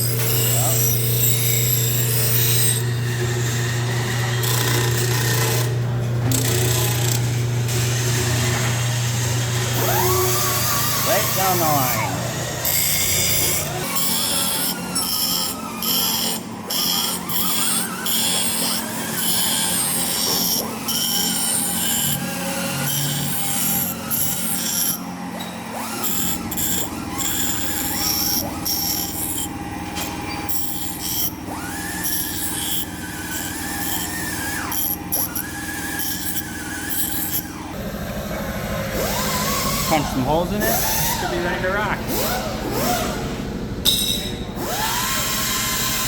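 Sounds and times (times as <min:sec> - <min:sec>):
power sander grinding metal: 0:00.0 - 0:43.2
steady machine hum: 0:37.5 - 0:45.0.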